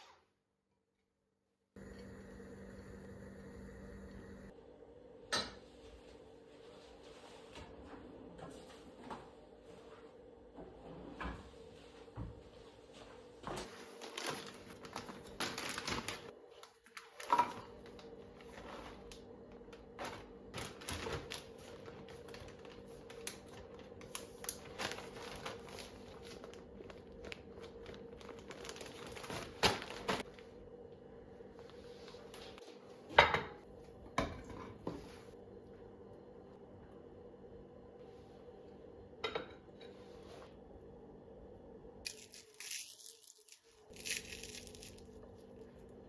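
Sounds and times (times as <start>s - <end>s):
faint steady hum: 1.8s - 46.0s
kitchen things clicking and rustling: 13.5s - 19.1s.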